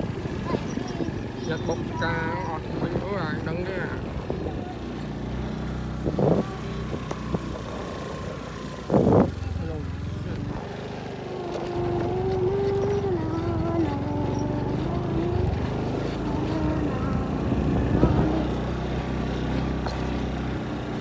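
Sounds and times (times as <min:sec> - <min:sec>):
small motorcycle engine running: 0:00.0 - 0:21.0
wavering pitched hum: 0:11.2 - 0:18.9.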